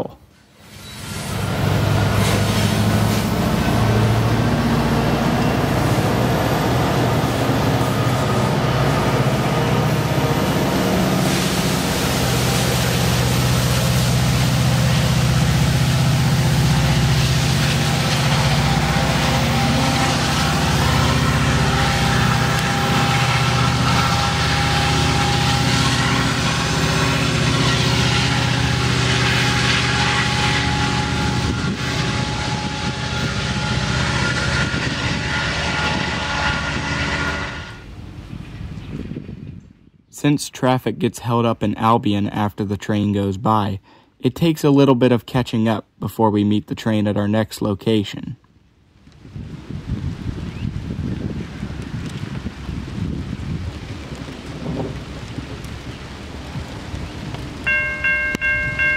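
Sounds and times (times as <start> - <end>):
locomotive engine drone: 0.0 - 39.3, 51.7 - 58.9
steady higher tones: 57.6 - 58.9.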